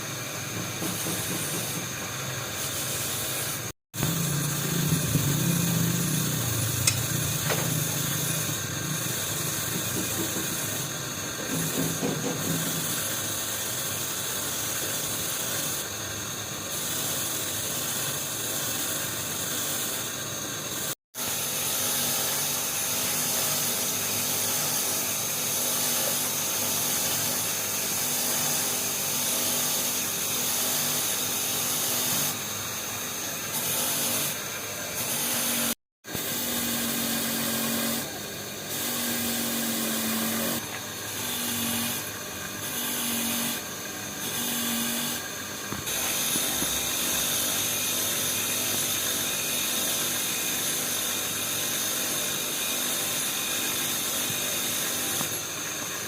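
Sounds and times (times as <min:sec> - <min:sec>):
power tool running: 0:00.0 - 0:56.0.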